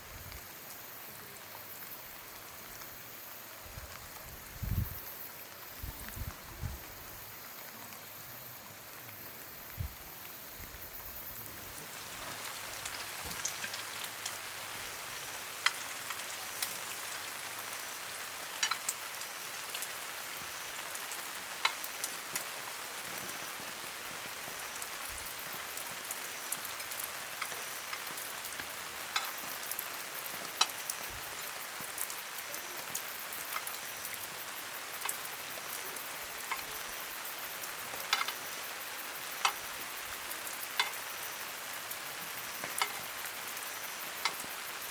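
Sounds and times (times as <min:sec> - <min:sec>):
rain falling: 0:00.0 - 0:44.9
drops ticking on a surface: 0:18.6 - 0:19.0.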